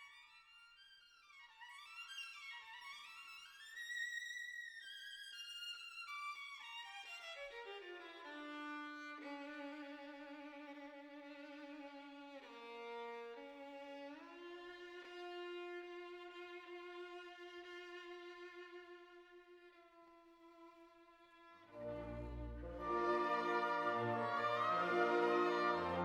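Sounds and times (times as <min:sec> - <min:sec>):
bowed string melody: 0:21.4 - 0:26.0.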